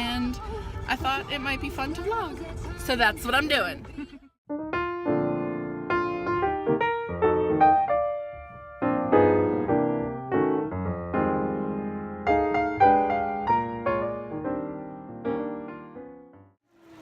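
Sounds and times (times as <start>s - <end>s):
piano music: 4.5s - 16.6s.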